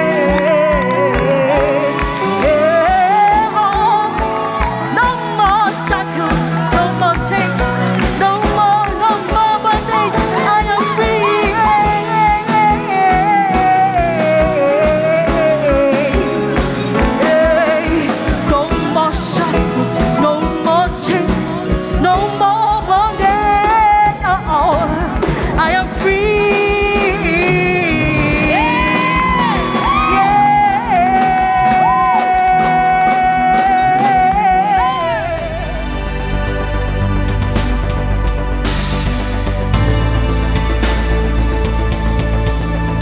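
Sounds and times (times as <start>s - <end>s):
band with drum beat: 0.0s - 35.9s, 37.0s - 43.0s
voices singing: 9.1s - 13.9s.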